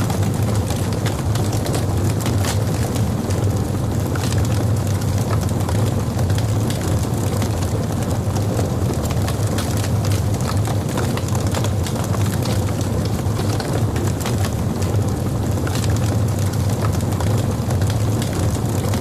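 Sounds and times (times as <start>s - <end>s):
logs crackling in fireplace: 0.0s - 19.0s
low rumble of flames: 0.0s - 19.0s.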